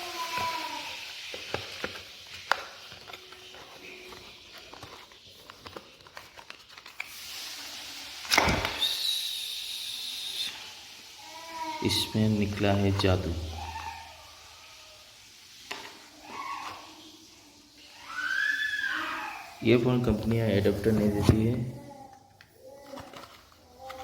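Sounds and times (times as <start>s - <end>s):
packaging clicks and rustles: 0.0s - 8.8s, 20.0s - 24.0s.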